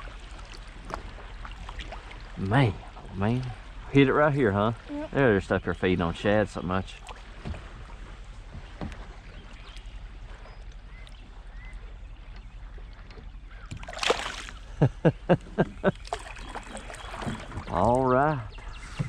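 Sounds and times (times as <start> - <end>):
small watery plops: 0.0 - 3.7, 6.8 - 14.7, 15.7 - 19.0
water lapping: 0.0 - 19.0
water splash: 13.7 - 14.8, 15.8 - 18.4.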